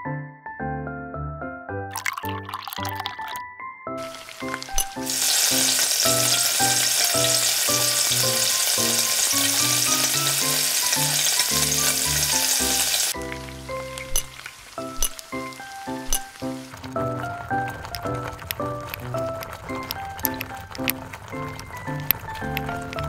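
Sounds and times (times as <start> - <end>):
garlic and onion sizzling in oil: 4.0 - 23.0.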